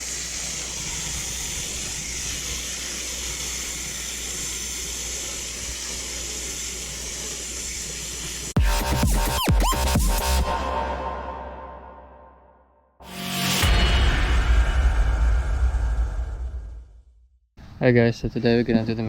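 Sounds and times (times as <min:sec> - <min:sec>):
steady hissing: 0:00.0 - 0:08.6
electronic music: 0:08.6 - 0:15.7
low hum: 0:08.6 - 0:17.2.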